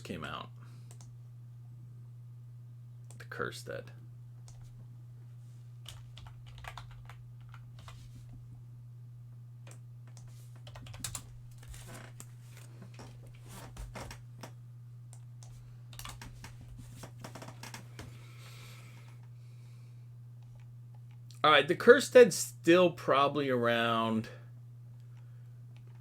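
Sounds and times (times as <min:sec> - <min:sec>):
steady low hum: 0:00.0 - 0:26.0
keyboard typing: 0:05.8 - 0:08.0, 0:09.7 - 0:11.9, 0:15.1 - 0:17.8.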